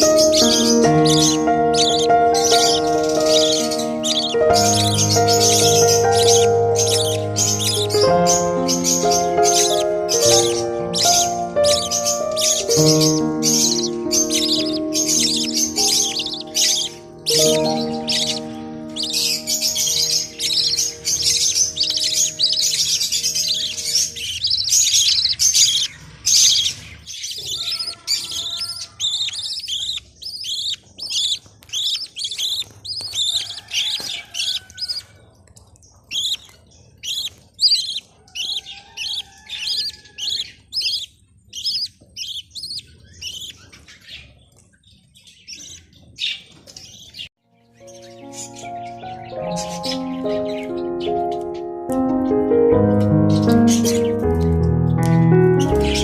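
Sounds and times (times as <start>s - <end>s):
background music: 0.0s - 25.8s, 47.5s - 56.0s
budgies chirping: 0.0s - 56.0s.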